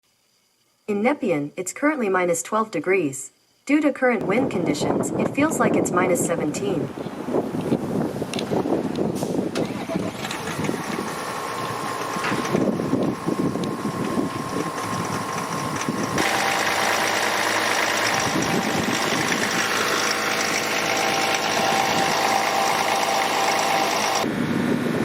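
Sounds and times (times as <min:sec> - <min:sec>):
wind on microphone: 0:04.2 - 0:16.2, 0:18.1 - 0:19.7, 0:24.2 - 0:25.0
diesel engine idling: 0:08.7 - 0:24.4.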